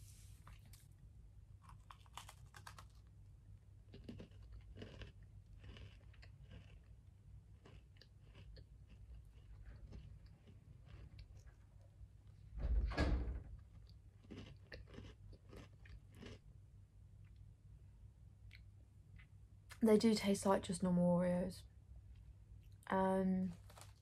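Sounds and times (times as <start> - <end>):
crunching and chewing cookie: 0.4 - 12.4, 13.4 - 17.6, 23.5 - 24.0.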